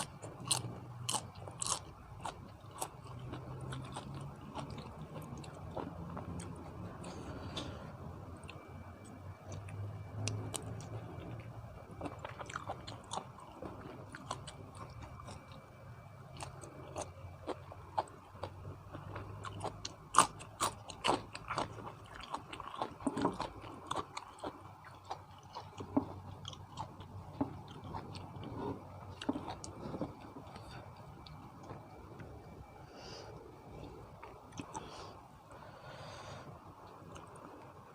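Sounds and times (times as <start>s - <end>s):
small food crunches: 0.0s - 7.7s, 12.0s - 15.6s, 16.3s - 31.9s
person chewing: 0.0s - 32.8s, 33.6s - 35.2s.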